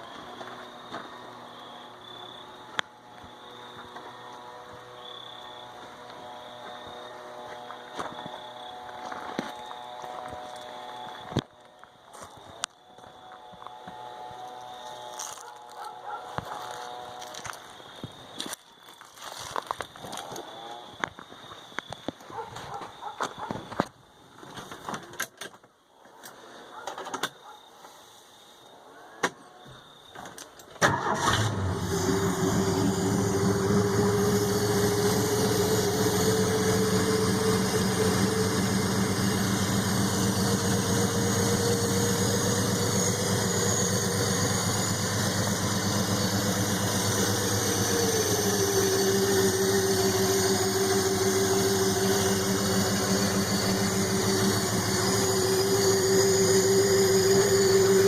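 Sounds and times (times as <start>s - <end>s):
car engine starting and idling: 30.8s - 58.0s.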